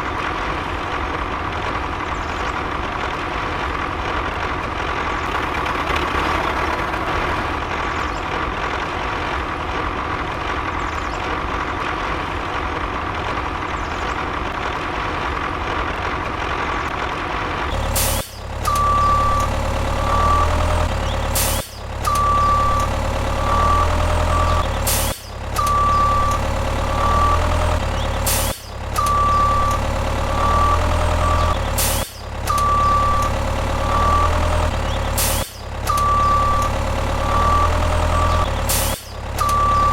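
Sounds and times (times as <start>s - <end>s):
truck engine rumble: 0.0s - 39.9s
beeps: 18.6s - 24.7s, 25.5s - 27.8s, 28.9s - 31.6s, 32.4s - 34.7s, 35.8s - 39.9s.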